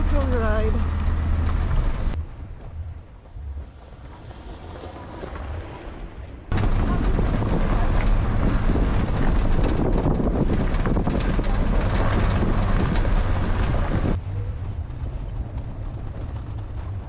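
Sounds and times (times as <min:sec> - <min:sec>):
gravel rattling from tyres: 0:00.0 - 0:17.0
road noise: 0:00.0 - 0:17.0
pickup truck engine running: 0:06.5 - 0:17.0.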